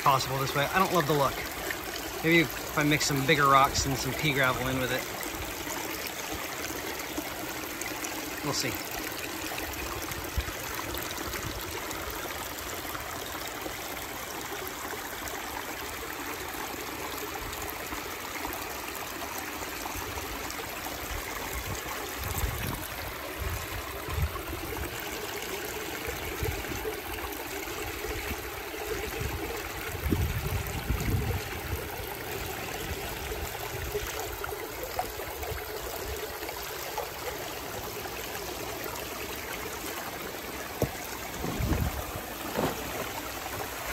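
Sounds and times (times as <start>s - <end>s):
water trickling over weir: 0.0s - 43.9s
low bumps: 40.7s - 43.9s.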